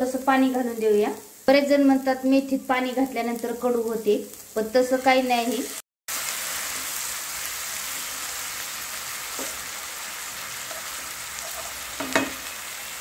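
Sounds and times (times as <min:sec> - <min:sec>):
leaves sizzling in hot oil: 0:00.0 - 0:13.0
spatula knocking against pan: 0:12.0 - 0:12.4.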